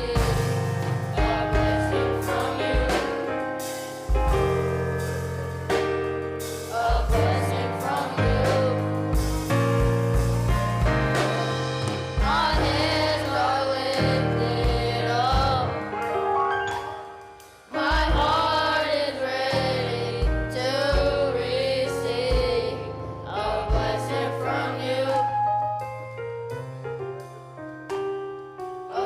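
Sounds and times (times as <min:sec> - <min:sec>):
gospel voices singing: 0:00.0 - 0:04.4, 0:06.4 - 0:17.1, 0:17.7 - 0:25.7
band with bass and drums: 0:00.0 - 0:18.9, 0:19.5 - 0:25.1.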